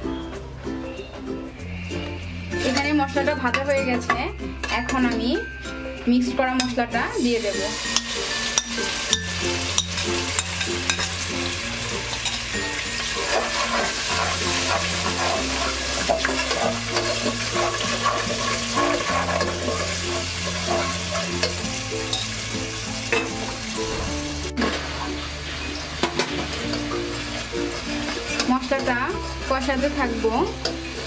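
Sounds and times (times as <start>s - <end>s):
background music with bass: 0.0s - 31.0s
masala sizzling in oil: 1.6s - 31.0s
spatula scraping pan: 12.1s - 22.5s.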